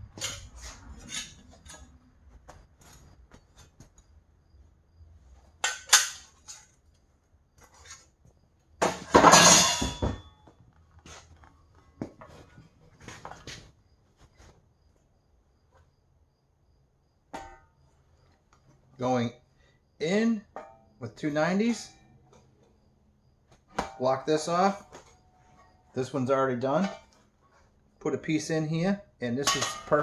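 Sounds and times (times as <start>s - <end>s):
metal pieces clinking and clanking: 5.6s - 6.7s, 8.9s - 10.2s.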